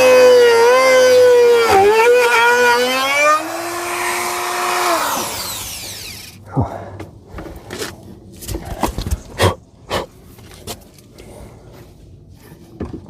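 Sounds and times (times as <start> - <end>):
power tool motor whining: 0.0 - 6.4.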